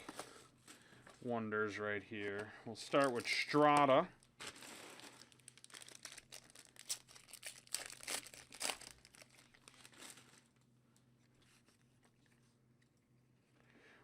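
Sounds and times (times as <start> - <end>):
wrapper tearing and crinkling: 3.0 - 10.6.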